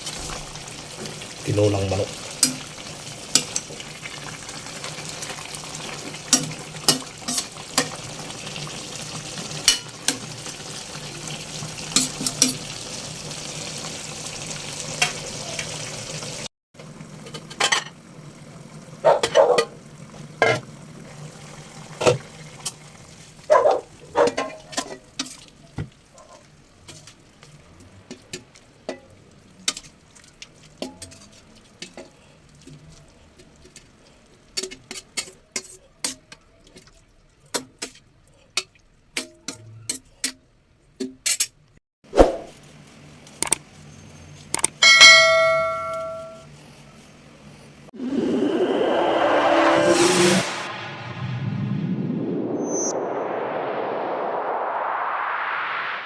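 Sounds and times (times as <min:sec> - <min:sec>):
pot sizzling and bubbling: 0:00.0 - 0:40.4
metal spoon clinking on pot: 0:44.8 - 0:46.5.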